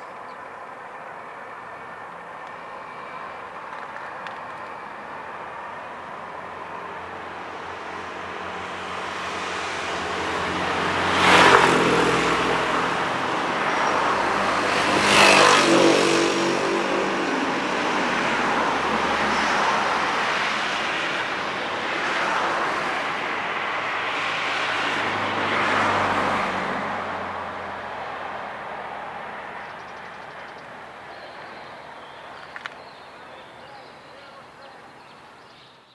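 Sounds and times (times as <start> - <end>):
passenger train passing: 0.5 - 24.1.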